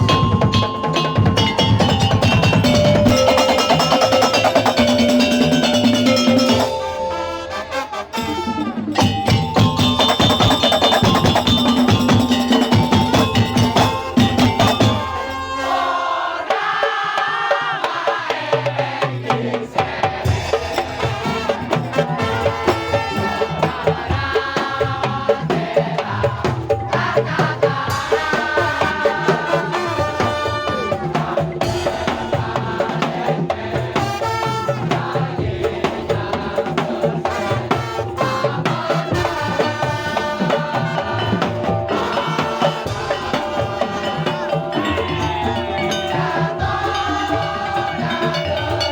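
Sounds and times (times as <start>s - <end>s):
melodic instruments: 0.0s - 15.6s, 41.0s - 48.9s
wooden slit drums and drums: 0.0s - 48.9s.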